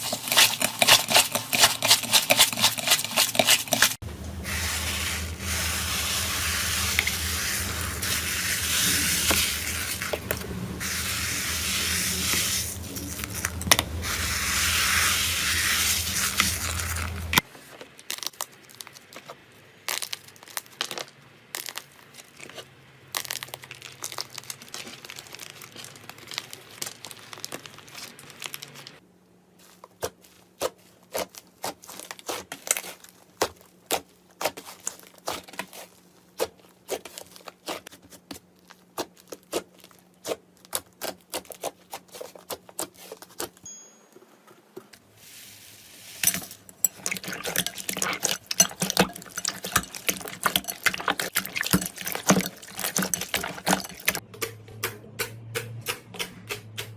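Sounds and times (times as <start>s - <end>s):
slime crackling and popping: 16.0s - 29.0s.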